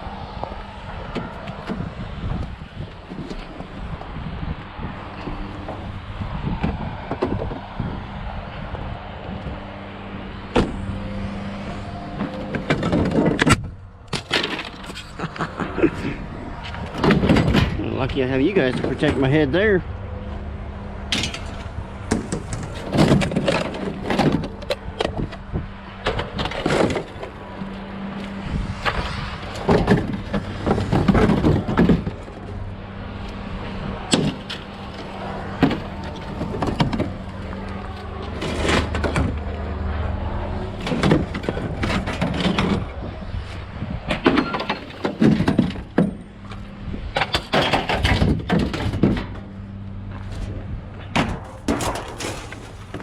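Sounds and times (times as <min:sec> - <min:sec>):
engine droning: 0:00.0 - 0:53.0
scrap metal clanking and banging: 0:11.6 - 0:19.7, 0:21.1 - 0:39.7, 0:40.6 - 0:53.0
junk thrown onto a pile: 0:12.2 - 0:15.2, 0:28.2 - 0:32.4, 0:51.1 - 0:53.0.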